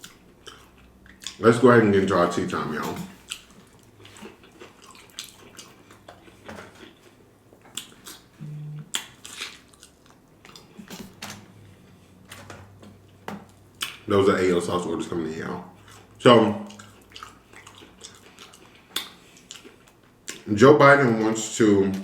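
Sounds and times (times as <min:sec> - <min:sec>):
close chewing with mouth clicks: 0:00.0 - 0:01.4, 0:03.2 - 0:11.2, 0:12.9 - 0:14.1, 0:15.7 - 0:20.5.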